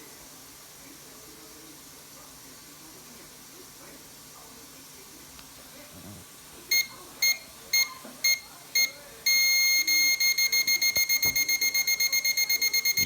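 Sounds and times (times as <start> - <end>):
microwave beeping: 6.7 - 13.0.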